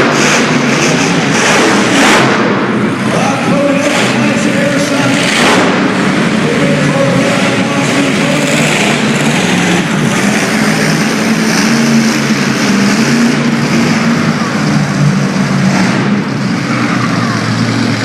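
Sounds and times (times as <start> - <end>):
truck engine running loud: 0.0 - 18.0.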